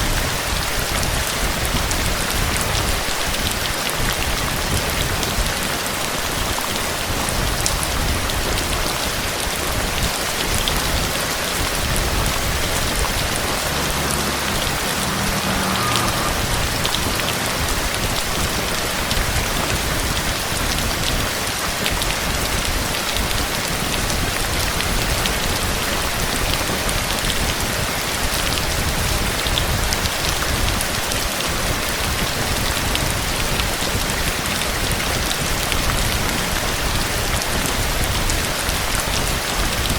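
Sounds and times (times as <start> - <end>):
dense rain falling: 0.0 - 39.9.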